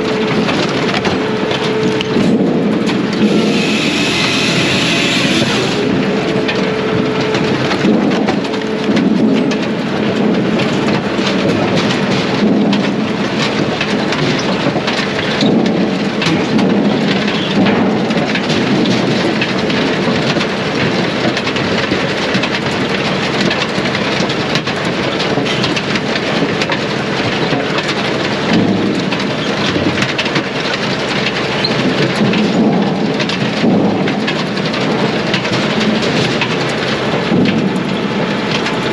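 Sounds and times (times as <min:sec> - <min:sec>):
machine running: 0:00.0 - 0:17.3
clatter of wood: 0:07.3 - 0:38.9.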